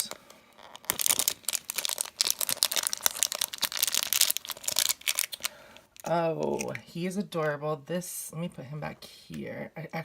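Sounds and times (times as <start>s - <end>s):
packaging being torn open: 0.0s - 6.1s.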